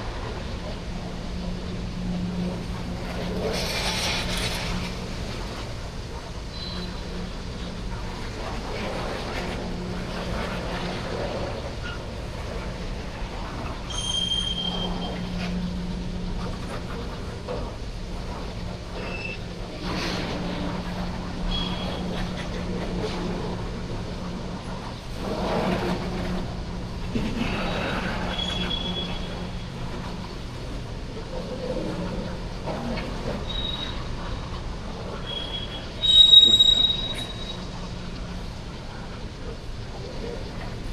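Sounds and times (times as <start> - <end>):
high wheel squeals: 13.9 - 15.4, 28.2 - 29.6, 33.4 - 34.1, 35.2 - 37.8.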